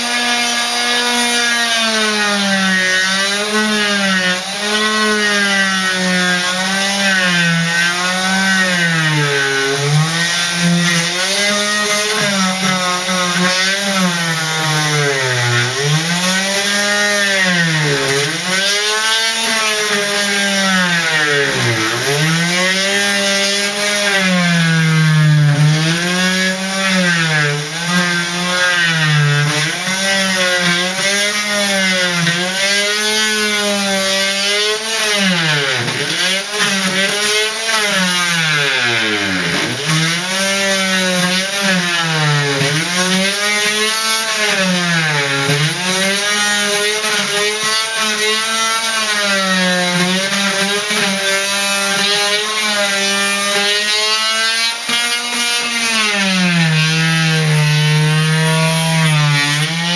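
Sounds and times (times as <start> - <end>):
power tool motor running: 35.0 - 43.9.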